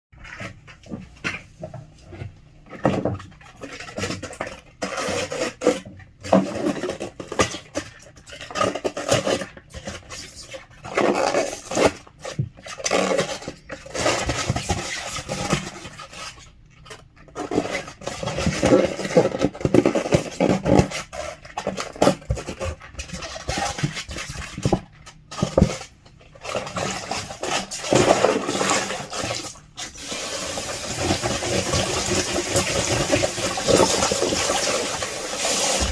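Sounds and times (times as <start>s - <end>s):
paper cartons rubbing and scraping: 2.7s - 35.9s
water running: 28.0s - 35.9s.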